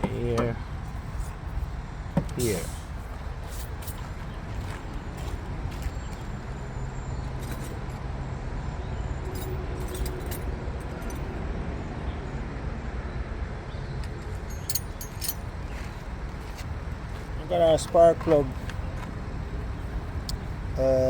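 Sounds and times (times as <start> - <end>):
metallic clinks of hand tools: 9.3 - 11.3, 14.4 - 15.6.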